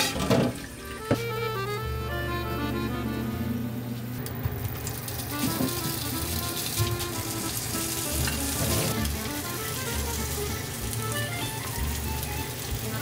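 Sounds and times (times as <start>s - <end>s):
food sizzling in oil: 4.6s - 13.0s.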